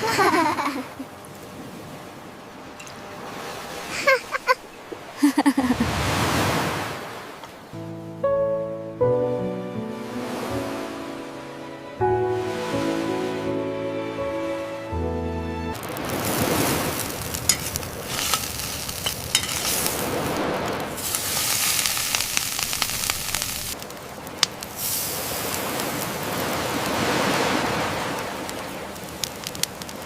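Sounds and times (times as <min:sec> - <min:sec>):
fire crackling: 0:15.8 - 0:30.0
fish sizzling on a grill: 0:15.8 - 0:30.0.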